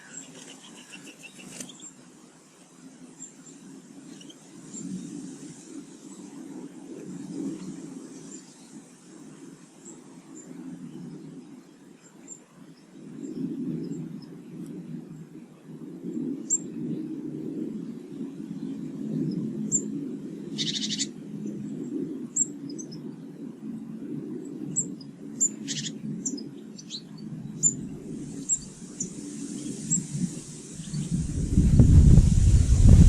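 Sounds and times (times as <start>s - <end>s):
harsh buzzy bird calls: 0.0s - 2.0s, 19.2s - 23.1s, 24.5s - 31.8s
small birds chirping: 0.0s - 2.0s, 3.0s - 6.4s, 17.8s - 23.4s, 24.4s - 32.8s
low rumble: 28.0s - 33.0s.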